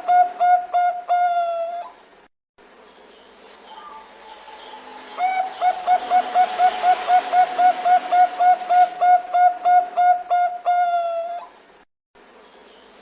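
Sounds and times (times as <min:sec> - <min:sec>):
dove cooing: 0:00.0 - 0:02.0, 0:03.7 - 0:11.6.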